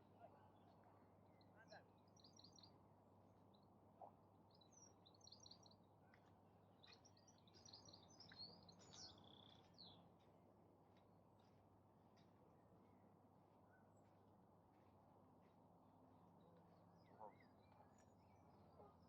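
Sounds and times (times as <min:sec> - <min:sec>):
songbird chirps and twitters: 0:06.8 - 0:10.3.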